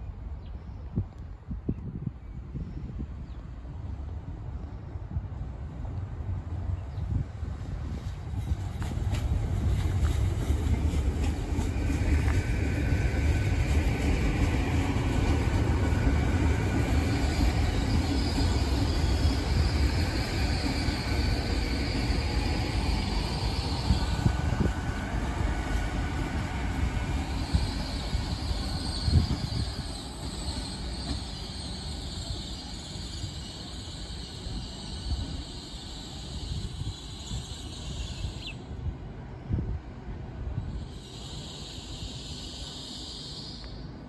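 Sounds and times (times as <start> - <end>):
train wheels rumbling on rail: 2.8 - 44.0
brake squeals: 27.3 - 38.4.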